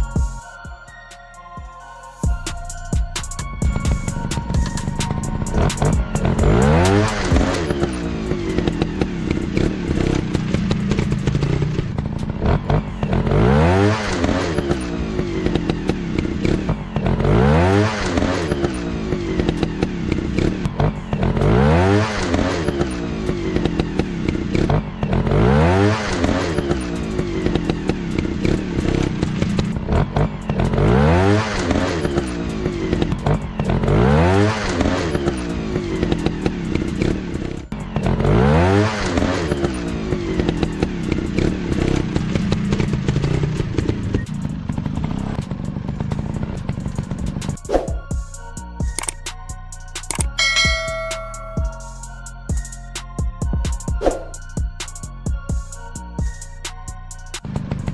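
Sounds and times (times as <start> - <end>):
dirt bike engine revving: 3.7 - 48.1.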